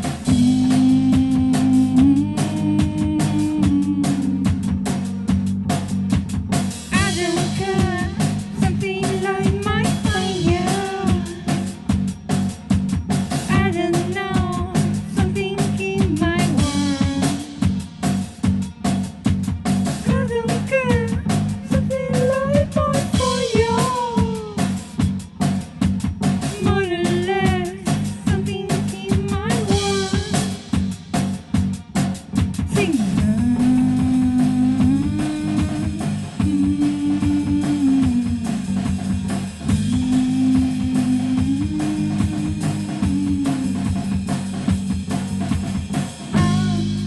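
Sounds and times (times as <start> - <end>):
drum kit: 0.0 - 47.0
electric bass line: 0.0 - 47.0
woman singing: 0.2 - 4.8, 6.9 - 11.8, 13.5 - 17.7, 20.0 - 24.8, 26.5 - 30.6, 32.7 - 38.9, 39.7 - 44.2, 46.3 - 47.0.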